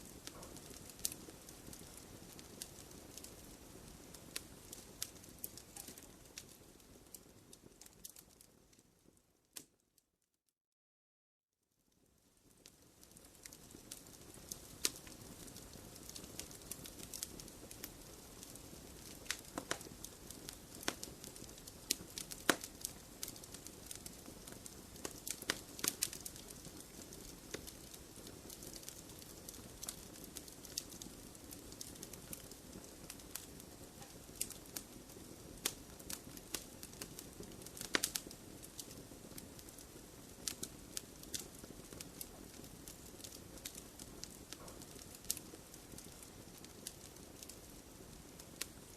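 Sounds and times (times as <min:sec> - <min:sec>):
low rush of flame: 0:00.0 - 0:08.5
wood fire crackling: 0:00.0 - 0:09.8, 0:12.0 - 0:48.9
sharp pops and snaps: 0:05.1 - 0:06.1, 0:19.0 - 0:20.0, 0:20.6 - 0:30.9, 0:37.8 - 0:38.9.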